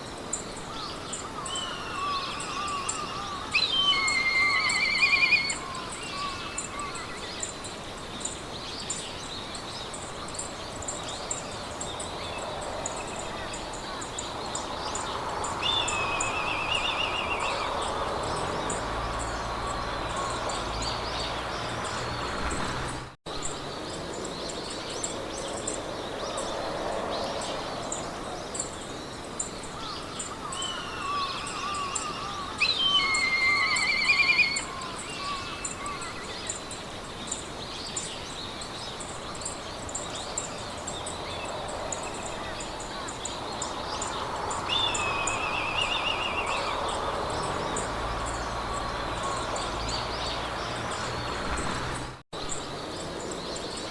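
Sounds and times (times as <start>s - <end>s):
insects chirping: 0.0s - 53.9s
wind blowing through grass: 0.0s - 53.9s
birds warbling: 0.7s - 7.6s, 10.4s - 23.1s, 29.7s - 36.7s, 37.3s - 53.9s.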